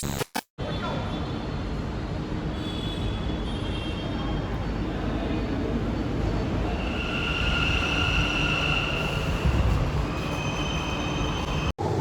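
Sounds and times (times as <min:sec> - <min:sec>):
train rumbling on rails: 0:04.8 - 0:12.0
wheel squeal: 0:06.7 - 0:11.7.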